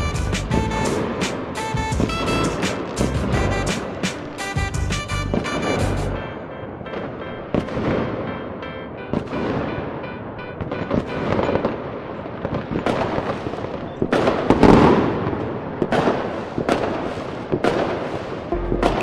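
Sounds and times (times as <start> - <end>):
fireworks bangs and crackling: 0.0 - 5.8, 6.9 - 8.3, 9.1 - 19.0
music: 0.0 - 11.3, 18.5 - 19.0.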